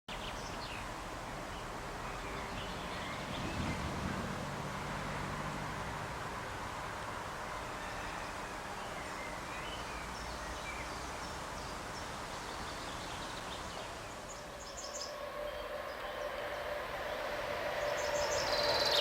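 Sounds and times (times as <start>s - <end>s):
small birds chirping: 0.1s - 5.4s, 8.0s - 16.5s
steady low rumble: 2.0s - 7.2s.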